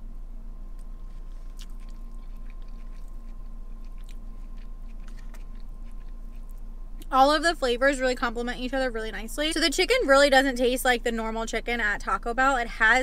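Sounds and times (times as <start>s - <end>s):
steady low hum: 0.0s - 13.0s
person chewing food: 0.8s - 6.7s.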